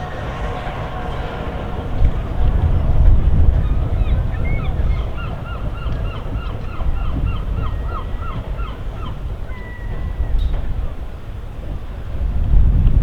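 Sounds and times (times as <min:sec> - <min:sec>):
steady low rumble: 0:00.0 - 0:07.5.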